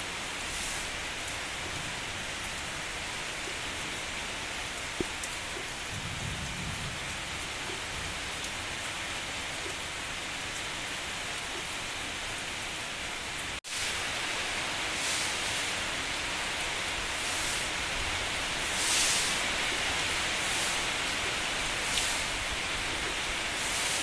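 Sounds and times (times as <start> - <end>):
steady rain falling: 0.0 - 24.0
sharp drip-like tick: 4.8 - 5.8, 18.8 - 22.3.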